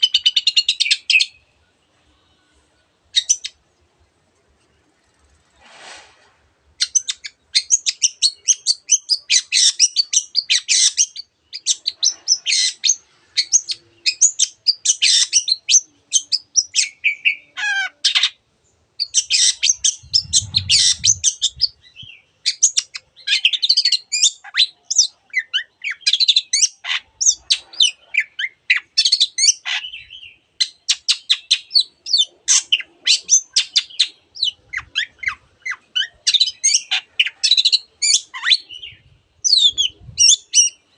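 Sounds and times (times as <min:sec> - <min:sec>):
bird chattering and chirping: 0:19.0 - 0:40.8.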